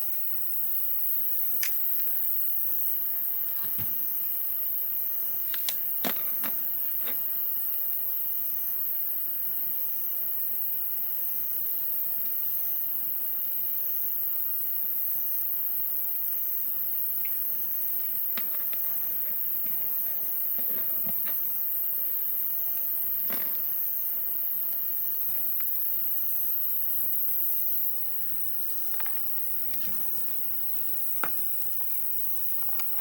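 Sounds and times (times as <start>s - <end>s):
insects chirping: 0.0s - 33.0s
sharp clicks and snaps: 1.6s - 1.8s, 5.4s - 5.8s.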